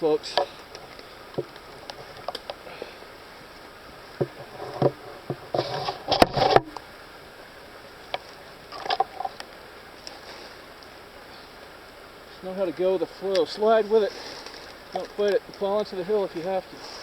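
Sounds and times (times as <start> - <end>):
brushing through foliage: 12.5 - 17.0
footsteps slipping in wet mud: 13.2 - 17.0.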